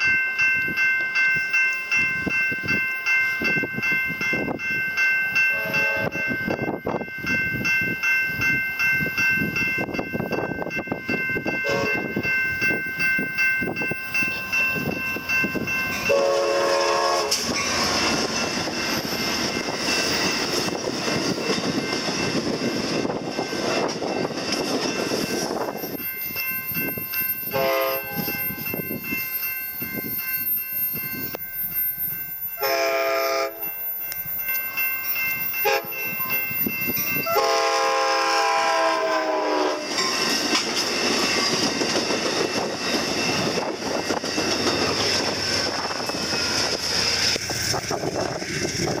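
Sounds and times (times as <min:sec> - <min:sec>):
crossing bell ringing: 0:00.0 - 0:49.0
train rumbling past: 0:00.0 - 0:49.0
train horn blasts: 0:05.5 - 0:06.3, 0:11.6 - 0:12.0, 0:16.0 - 0:17.6, 0:27.5 - 0:28.3, 0:32.6 - 0:33.6, 0:35.6 - 0:36.0, 0:37.2 - 0:40.0.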